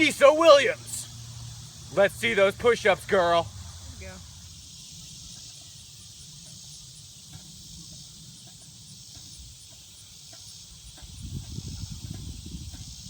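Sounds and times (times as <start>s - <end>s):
insects hissing: 0.0s - 13.0s
wind rumble on microphone: 10.7s - 13.0s.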